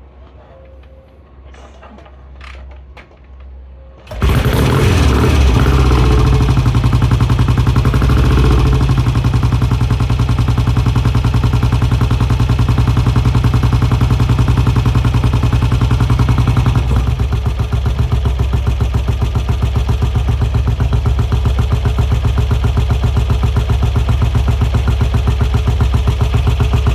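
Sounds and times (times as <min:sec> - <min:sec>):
motorcycle engine idling: 0:04.1 - 0:26.9.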